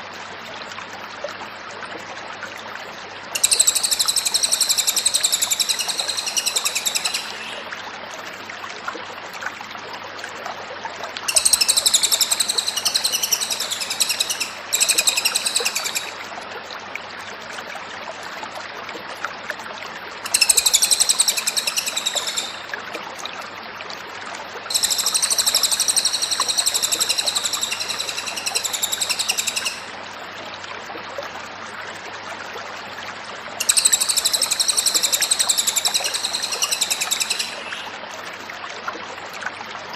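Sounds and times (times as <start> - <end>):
bird chattering song: 3.4 - 7.6, 11.3 - 16.2, 20.2 - 22.7, 24.7 - 29.9, 33.6 - 37.9.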